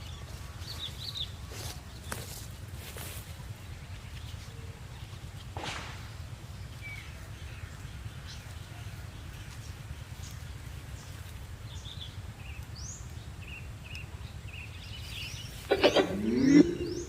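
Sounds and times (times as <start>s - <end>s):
rustle: 0.0s - 17.0s
low rumble: 11.2s - 17.0s
bird chirps: 11.8s - 17.0s
short rising bird call: 15.7s - 17.0s.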